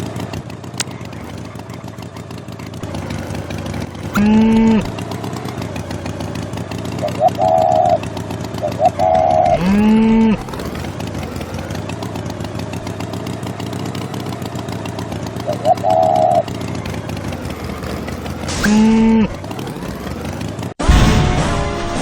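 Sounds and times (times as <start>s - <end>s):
cartoon tractor engine running: 0.0s - 22.0s
cow mooing: 4.1s - 4.9s, 9.1s - 11.9s
warbling high-pitched call: 7.0s - 8.0s.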